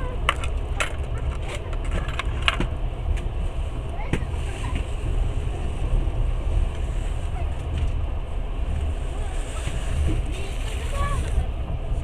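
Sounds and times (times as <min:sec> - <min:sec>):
train rumbling: 0:00.0 - 0:12.0
sharp clicks and rattling knocks: 0:00.2 - 0:03.3.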